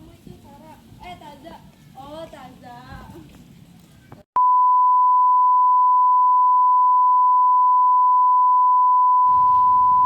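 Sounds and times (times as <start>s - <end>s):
steady electronic beep: 4.4s - 10.0s.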